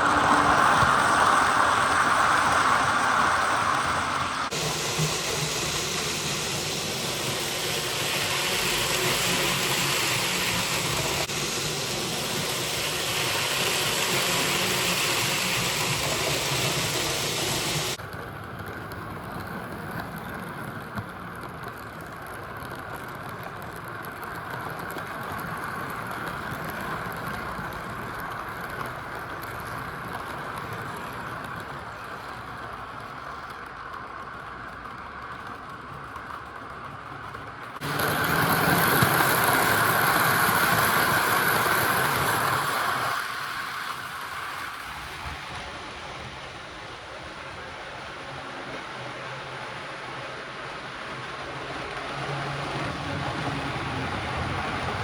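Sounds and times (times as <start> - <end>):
hiss: 0.0 - 18.0, 37.8 - 53.4
model locomotive engine running: 0.0 - 55.0.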